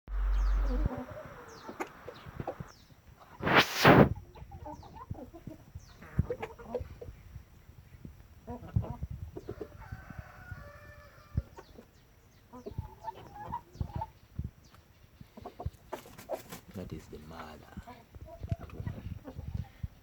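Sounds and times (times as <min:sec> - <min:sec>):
low thumps: 0:00.0 - 0:02.7
chickens clucking: 0:00.2 - 0:20.0.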